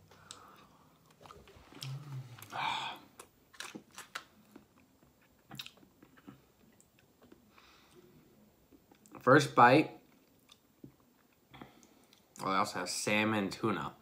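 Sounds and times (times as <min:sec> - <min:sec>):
person breathing: 0:00.0 - 0:01.0, 0:01.8 - 0:03.2, 0:07.5 - 0:08.3
person chewing: 0:00.2 - 0:08.0
person humming: 0:01.8 - 0:03.1.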